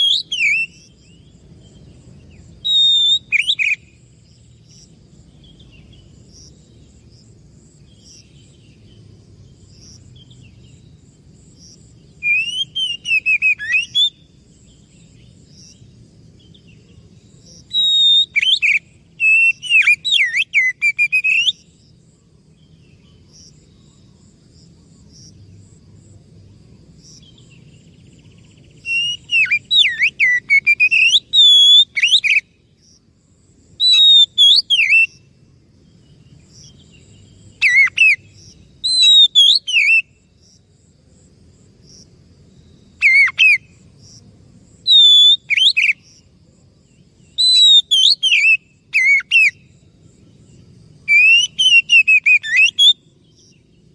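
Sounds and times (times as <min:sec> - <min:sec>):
songbird singing whistles: 0:00.0 - 0:01.3, 0:02.4 - 0:04.0, 0:12.2 - 0:14.3, 0:17.6 - 0:21.7, 0:27.4 - 0:32.6, 0:33.8 - 0:35.2, 0:37.6 - 0:40.2, 0:44.9 - 0:46.0, 0:47.3 - 0:49.7, 0:51.0 - 0:53.6.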